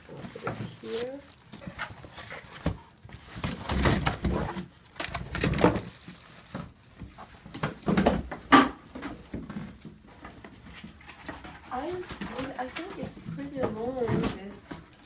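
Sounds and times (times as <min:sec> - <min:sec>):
packaging rustling: 0:00.0 - 0:08.5.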